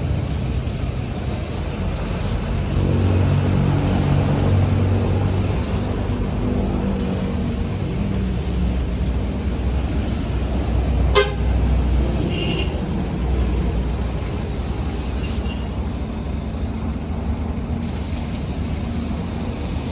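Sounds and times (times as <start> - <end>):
road traffic rumble: 0.0 - 19.9
vehicle horn toot: 11.1 - 11.6, 12.2 - 12.8.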